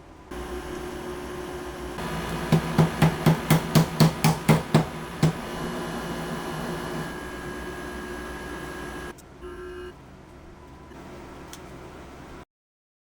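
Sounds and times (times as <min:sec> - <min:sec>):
steady low hum: 0:00.0 - 0:12.4
knocks: 0:02.3 - 0:05.4.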